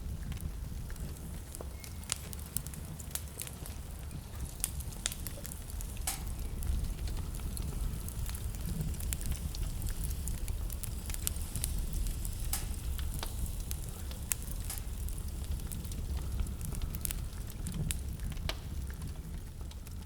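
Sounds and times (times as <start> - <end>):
wood fire crackling: 0.0 - 20.0
low rumble: 4.5 - 19.1.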